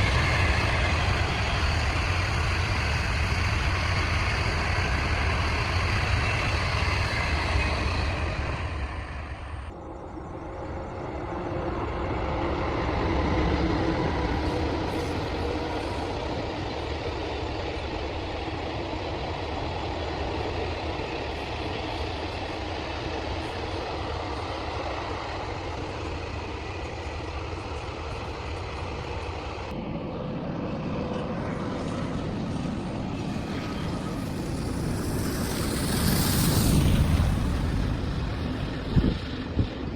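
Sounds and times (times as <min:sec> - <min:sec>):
vehicle rumbling with hiss: 0:00.0 - 0:09.7, 0:30.9 - 0:39.9.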